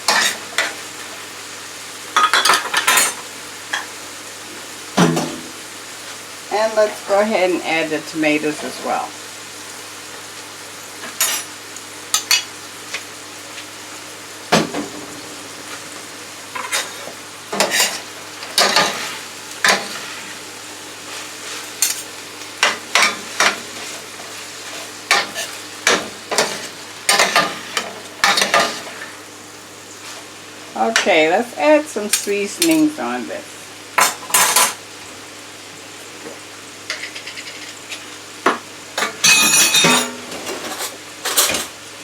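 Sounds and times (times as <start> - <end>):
vegetables sizzling in oil: 0.0 - 42.0.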